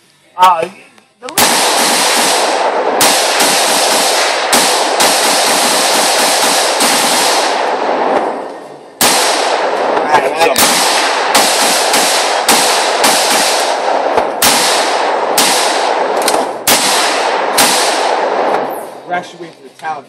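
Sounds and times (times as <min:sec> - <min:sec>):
rifle shots with echoes: 0:01.3 - 0:19.2.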